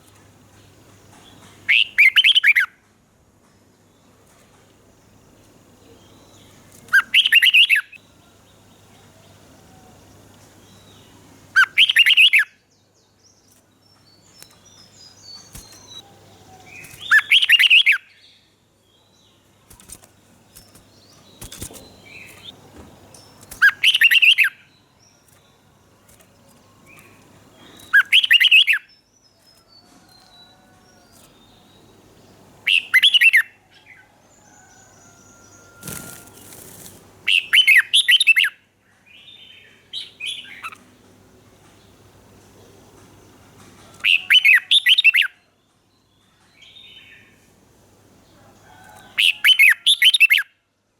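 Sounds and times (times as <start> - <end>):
bird song phrases: 0.0 - 2.8, 3.4 - 50.9.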